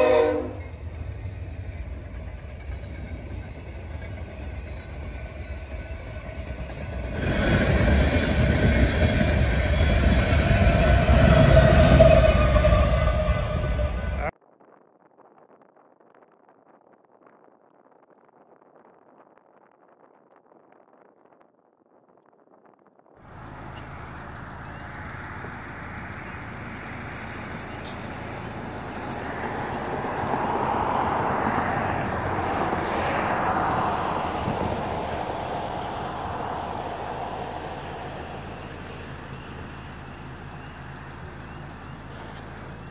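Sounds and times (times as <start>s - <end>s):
train wheel and rail noise: 0.0s - 14.4s, 23.2s - 42.9s
diesel engine drone: 23.2s - 42.9s.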